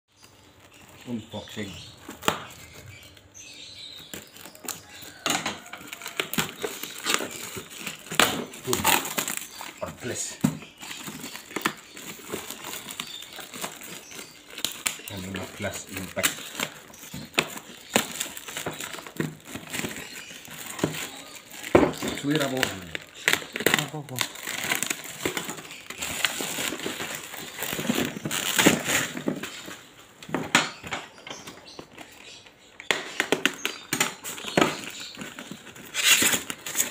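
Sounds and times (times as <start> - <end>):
cardboard and plastic rustling: 0.1 - 36.9
hard items knocking: 16.4 - 23.8.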